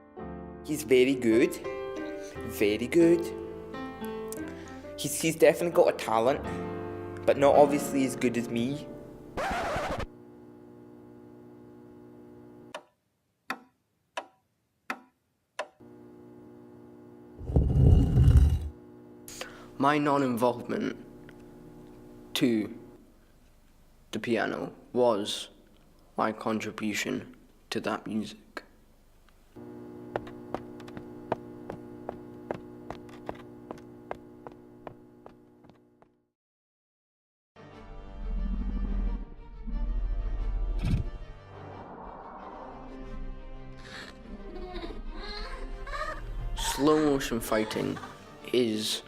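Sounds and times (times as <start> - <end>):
low electrical hum: 10.1 - 12.7, 15.8 - 36.0.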